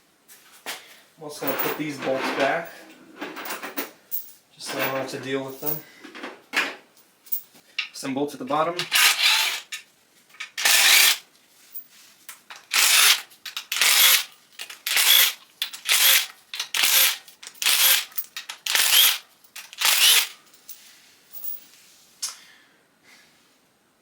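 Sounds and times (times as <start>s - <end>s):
cordless power tool whining: 16.8s - 18.1s, 18.7s - 19.2s, 19.8s - 20.3s.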